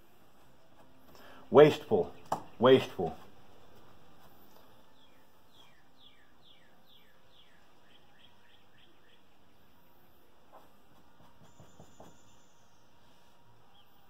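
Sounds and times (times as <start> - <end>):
bird singing whistled notes: 4.9 - 9.6, 11.4 - 13.0.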